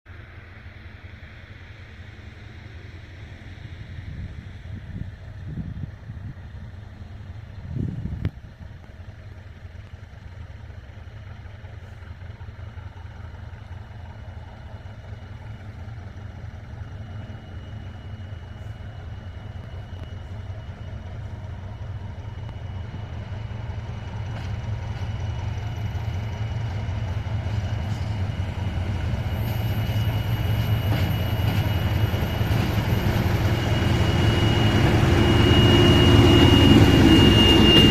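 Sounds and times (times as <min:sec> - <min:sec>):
diesel locomotive engine rumble: 0:00.1 - 0:37.9
faint high whine: 0:11.4 - 0:37.9.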